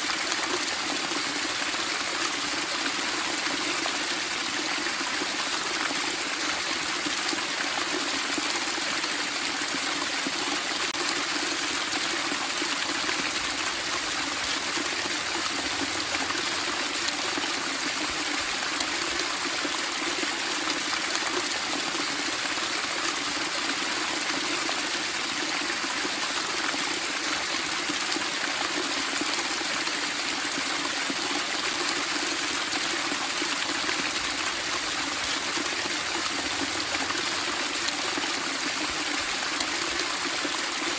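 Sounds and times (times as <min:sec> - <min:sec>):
running water splashing: 0:32.4 - 0:40.9.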